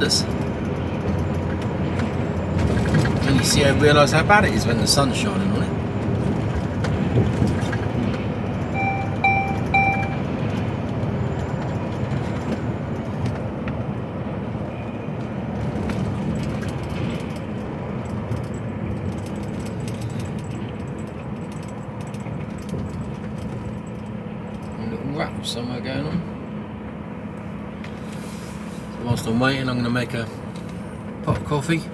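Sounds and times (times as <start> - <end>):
lorry engine rumble: 0.0 - 31.9
short electronic beeps: 8.8 - 10.3.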